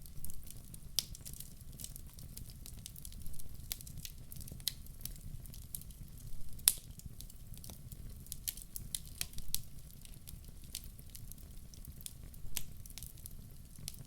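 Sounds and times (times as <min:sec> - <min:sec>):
wood fire crackling: 0:00.0 - 0:14.0
sharp pops of fire: 0:06.6 - 0:07.6.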